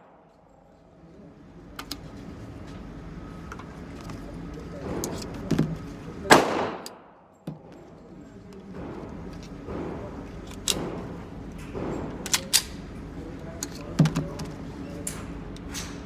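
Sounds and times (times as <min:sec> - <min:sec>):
pistol shots with echo: 0:06.3 - 0:07.2.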